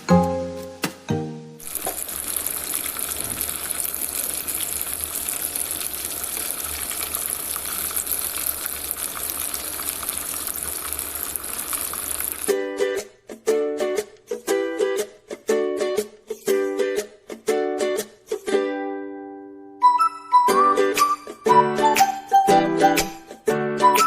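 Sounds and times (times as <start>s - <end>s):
chicken deep-frying in hot oil: 1.6s - 12.5s.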